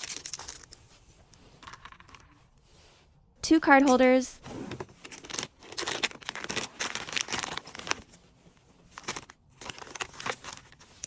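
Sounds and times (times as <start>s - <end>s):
plastic packaging crinkling: 5.0s - 8.2s, 8.9s - 11.0s.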